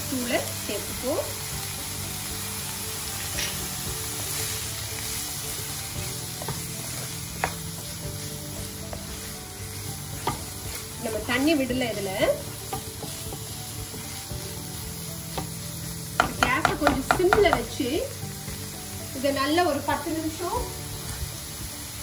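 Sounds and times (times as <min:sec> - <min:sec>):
vegetables sizzling in oil: 0:00.0 - 0:22.0
spatula knocking against pan: 0:07.4 - 0:07.8, 0:16.1 - 0:17.7.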